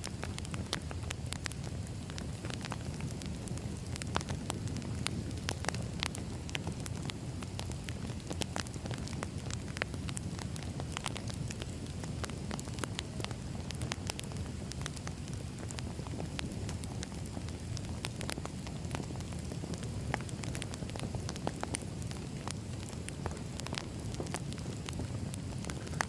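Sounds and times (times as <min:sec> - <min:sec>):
low rumble of flames: 0:00.0 - 0:26.0
wood crackling and popping: 0:00.0 - 0:26.0.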